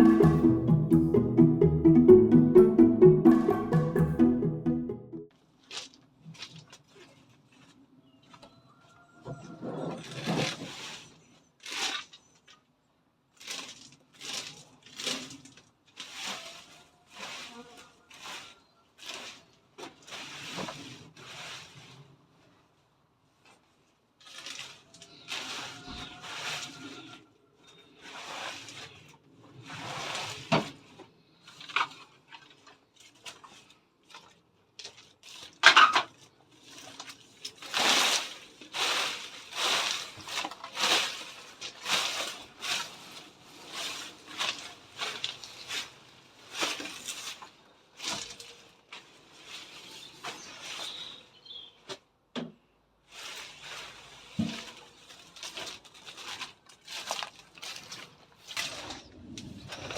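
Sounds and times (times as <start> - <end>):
hedge branches rustling and crackling: 5.6 - 7.8, 13.3 - 16.8, 23.4 - 26.9, 27.9 - 51.9, 53.0 - 59.9.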